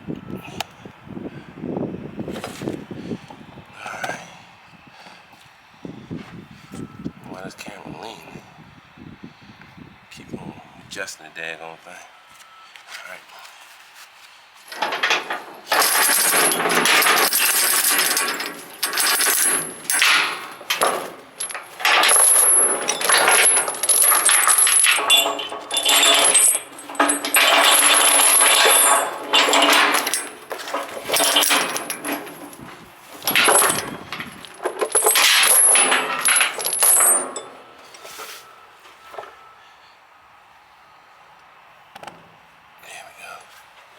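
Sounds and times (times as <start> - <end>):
steel chain rattling: 14.7 - 37.6.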